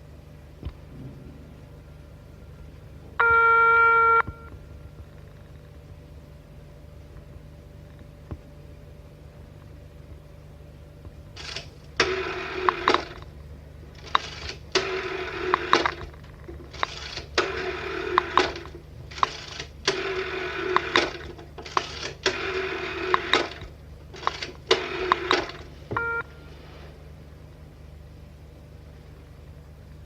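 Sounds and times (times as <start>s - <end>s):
short beep: 3.2s - 4.6s, 26.0s - 26.5s.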